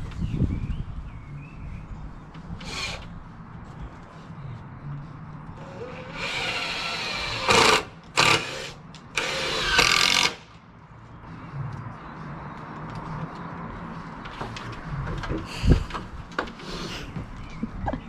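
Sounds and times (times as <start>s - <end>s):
power drill running: 5.7s - 10.4s.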